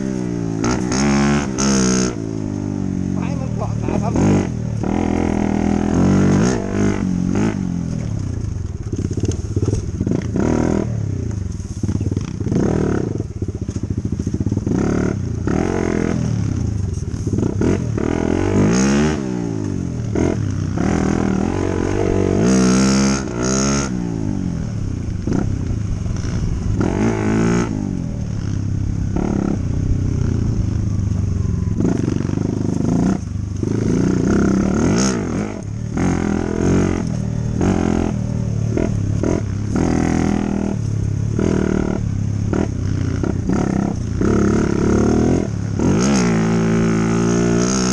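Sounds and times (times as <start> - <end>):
dirt bike engine revving: 0.0 - 30.9, 31.6 - 47.9
clatter over rough ground: 3.2 - 47.9.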